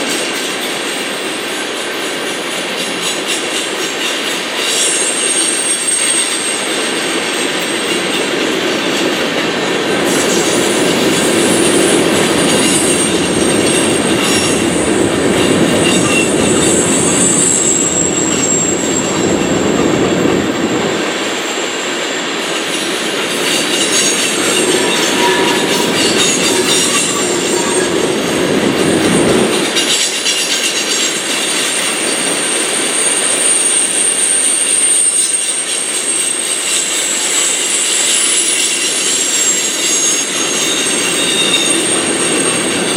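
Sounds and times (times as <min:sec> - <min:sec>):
train wheels rumbling on track: 0:00.0 - 0:42.9
wheel squeal: 0:02.8 - 0:08.2, 0:10.1 - 0:19.6, 0:22.4 - 0:28.4, 0:29.7 - 0:42.9.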